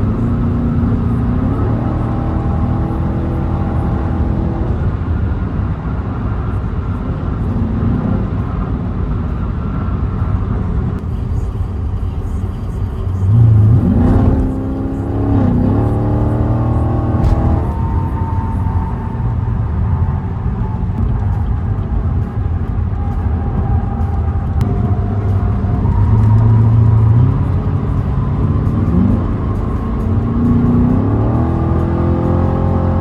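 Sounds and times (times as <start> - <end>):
car engine revving: 0.0 - 5.6, 12.3 - 33.0.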